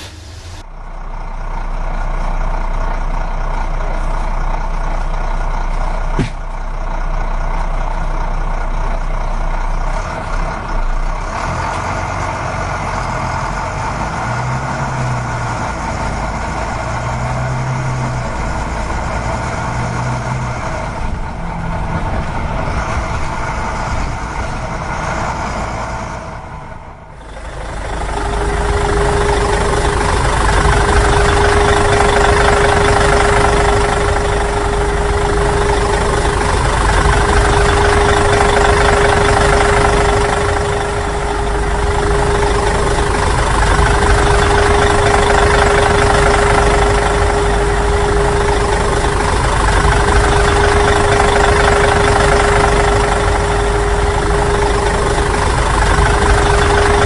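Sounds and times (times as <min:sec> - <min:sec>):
model truck motor whining: 0:02.0 - 0:57.0.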